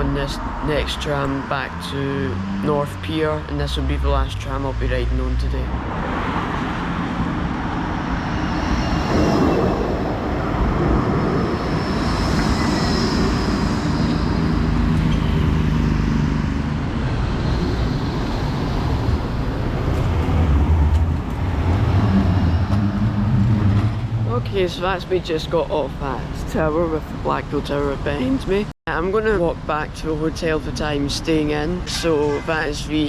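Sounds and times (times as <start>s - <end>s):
tram wheels and motors rumbling: 0.0s - 31.9s
faint high whine: 7.6s - 20.2s.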